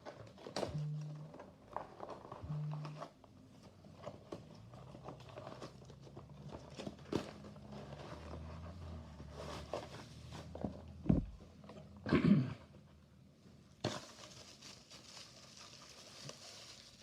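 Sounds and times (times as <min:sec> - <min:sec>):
faint low hum: 0:00.0 - 0:16.9
toy packaging being handled: 0:13.8 - 0:17.0.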